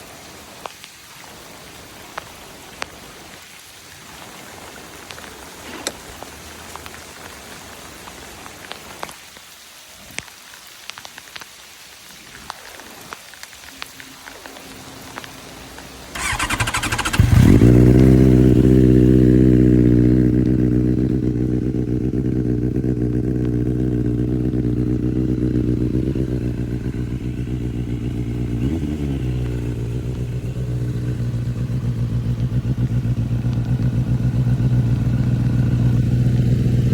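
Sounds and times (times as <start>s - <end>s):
motorcycle engine idling: 16.1s - 36.9s
motorcycle starter cranking: 16.2s - 18.5s.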